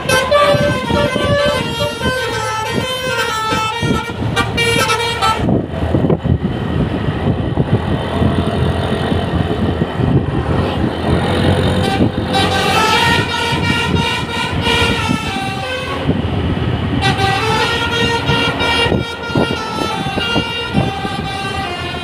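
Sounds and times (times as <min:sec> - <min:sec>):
bus musical horn tune: 0:00.0 - 0:05.7, 0:11.7 - 0:16.2, 0:16.9 - 0:22.0
engine and road noise: 0:00.0 - 0:22.0.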